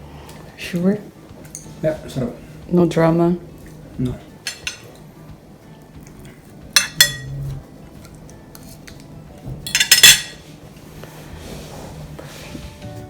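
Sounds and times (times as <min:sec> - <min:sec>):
cutlery clinking against plate: 0:04.1 - 0:05.1, 0:06.3 - 0:07.4, 0:09.7 - 0:10.5.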